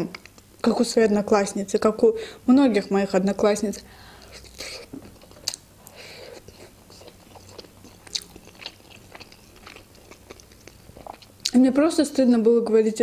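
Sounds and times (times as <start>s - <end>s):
person chewing a dumpling: 4.1s - 11.5s.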